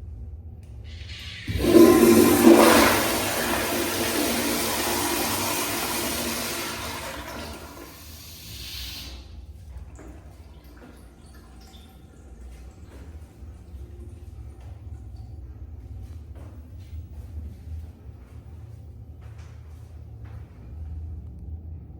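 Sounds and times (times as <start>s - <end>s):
water dripping: 0.6s - 16.2s
toilet flushing: 0.8s - 16.5s.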